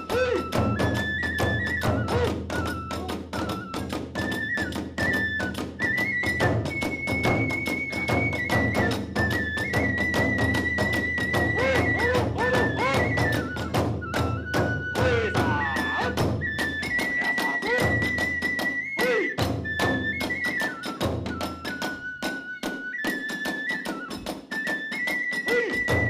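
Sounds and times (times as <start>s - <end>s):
bamboo flute melody: 0.0s - 26.0s
fast drum beats: 4.8s - 20.2s.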